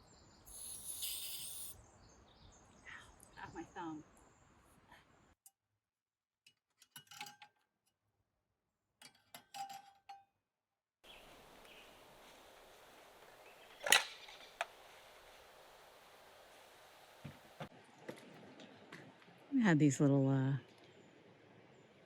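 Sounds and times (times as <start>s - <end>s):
faint steady hiss: 11.1s - 17.7s.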